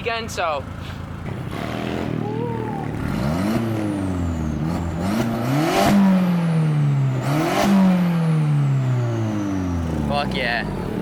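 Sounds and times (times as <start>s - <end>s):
car engine revving: 1.2s - 11.0s.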